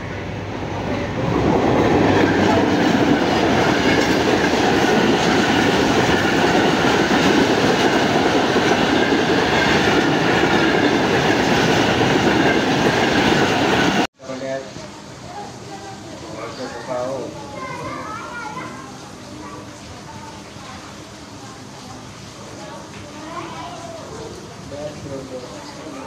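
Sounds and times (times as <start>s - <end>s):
passenger train rolling past: 0.0s - 18.0s, 18.8s - 26.0s.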